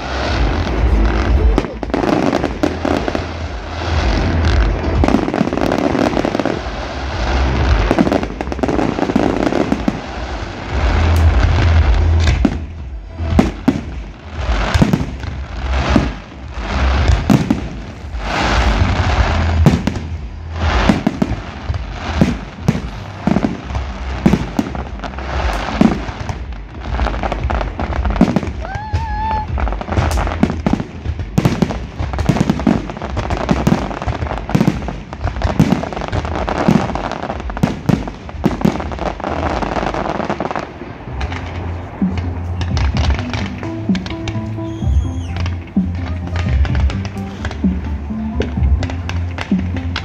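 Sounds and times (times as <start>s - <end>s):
fireworks bangs and crackles: 0.0s - 50.0s
fireworks booming: 0.0s - 50.0s.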